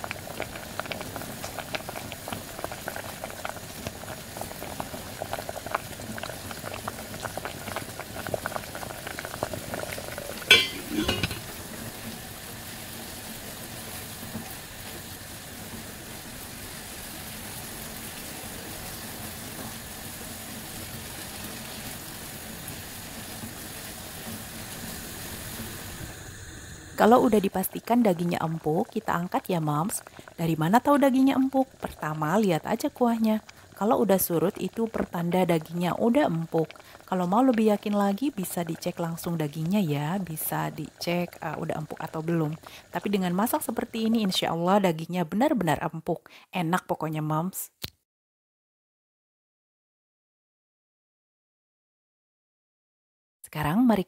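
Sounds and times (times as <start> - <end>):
broth bubbling with pops: 0.0 - 11.6
spatula knocking on pan: 10.5 - 11.5.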